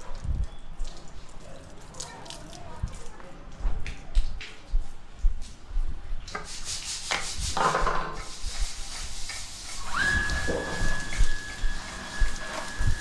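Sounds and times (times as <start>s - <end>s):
rubbing and scrubbing: 6.3s - 13.0s.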